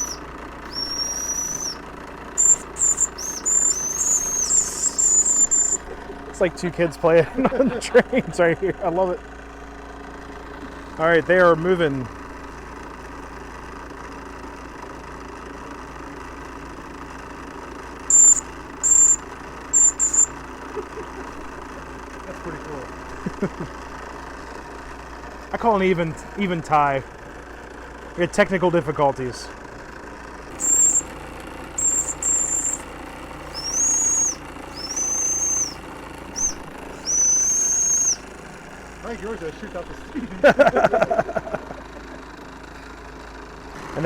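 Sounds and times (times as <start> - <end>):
steam whistle toots: 0.0 - 1.8, 2.4 - 5.8, 33.5 - 35.8
steam engine running: 0.0 - 8.2, 30.4 - 43.3
small steam engines running: 0.0 - 44.0.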